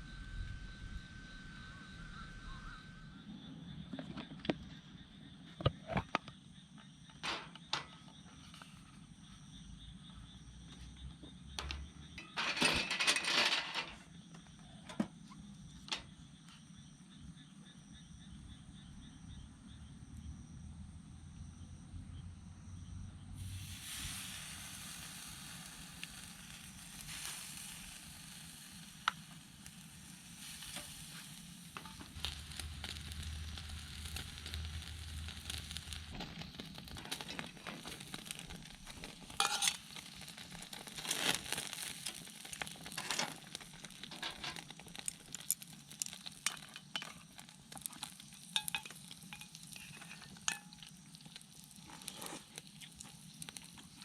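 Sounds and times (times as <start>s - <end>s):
pork sizzling on a grill plate: 23.4s - 54.0s
sharp pops and crackles: 24.0s - 54.0s.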